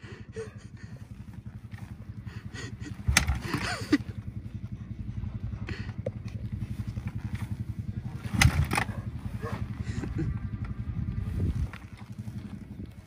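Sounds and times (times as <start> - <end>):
rapid low engine pulsing: 0.0 - 13.0
motorbike kick-start kicks: 1.4 - 4.4, 5.5 - 12.7.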